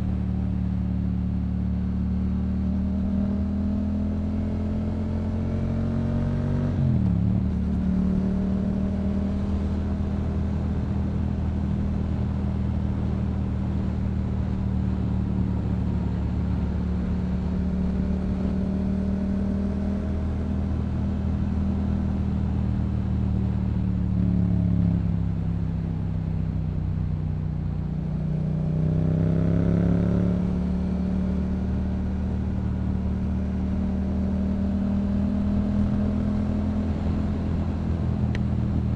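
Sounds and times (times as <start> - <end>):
motorcycle engine cruising: 0.0 - 38.9.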